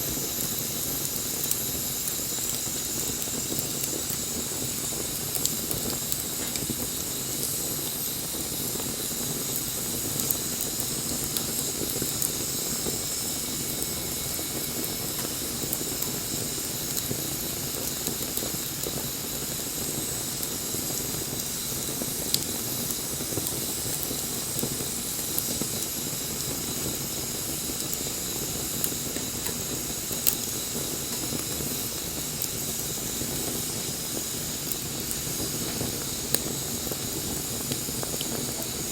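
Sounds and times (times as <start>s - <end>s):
bonfire hissing and crackling: 0.0s - 38.9s.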